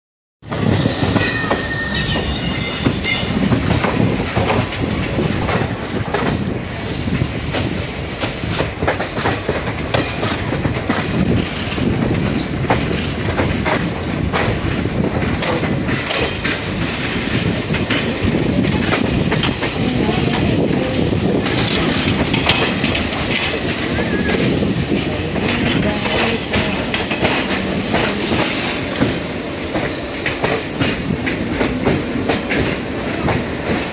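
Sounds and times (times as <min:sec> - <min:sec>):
high wheel squeal: 0:00.4 - 0:03.4, 0:23.6 - 0:24.5
train wheels rumbling on track: 0:00.4 - 0:33.9
wheels clicking over rail joints: 0:00.5 - 0:33.9.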